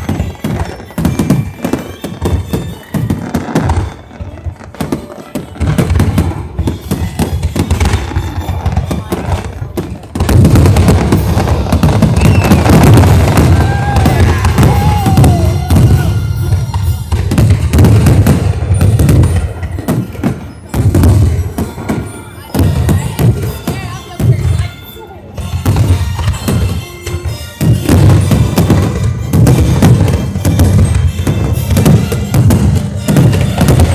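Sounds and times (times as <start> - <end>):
fireworks bangs and crackles: 0.0 - 33.9
music playing: 0.0 - 33.9
deep firework booms: 2.3 - 24.6.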